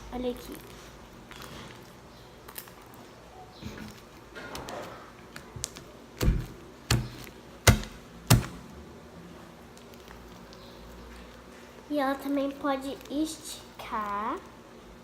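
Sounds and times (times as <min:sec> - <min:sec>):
slime squishing: 0:09.6 - 0:15.0.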